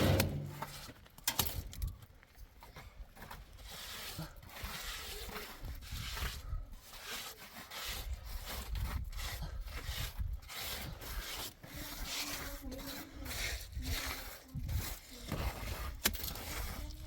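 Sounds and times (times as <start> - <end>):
rubbing or rasping strokes: 3.2 - 17.0.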